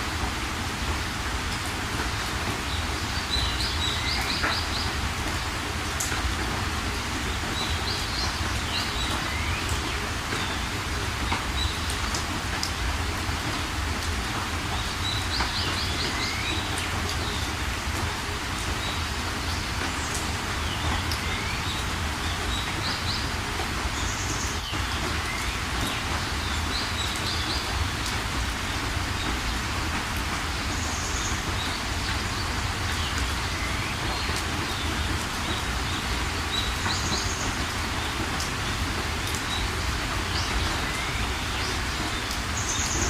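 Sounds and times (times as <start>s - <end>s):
steady rain: 0.0s - 43.0s
small birds chirping: 30.6s - 43.0s.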